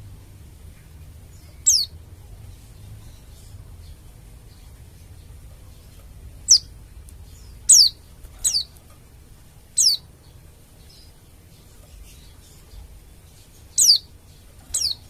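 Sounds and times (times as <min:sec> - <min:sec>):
bird giving high sharp calls: 0:01.6 - 0:01.9, 0:06.5 - 0:06.7, 0:07.7 - 0:08.7, 0:09.8 - 0:10.0, 0:13.8 - 0:14.1, 0:14.7 - 0:15.0.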